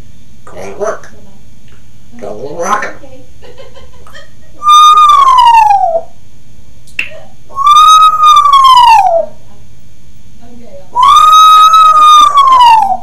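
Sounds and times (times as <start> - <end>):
parrot whistling: 4.6 - 6.2, 7.5 - 9.4, 11.0 - 13.0.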